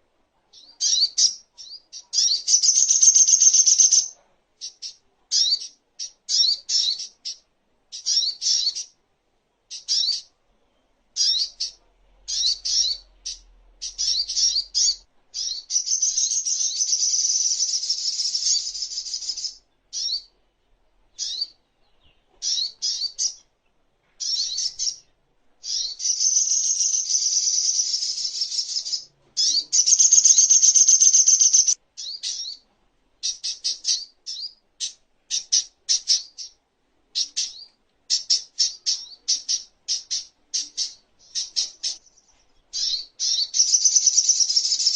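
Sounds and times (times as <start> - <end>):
sunbird high-pitched chirps: 0.5 - 9.0, 9.7 - 10.3, 11.2 - 20.3, 21.2 - 23.5, 24.2 - 32.6, 33.2 - 36.6, 37.2 - 44.9
sunbird fast trills: 25.6 - 32.6.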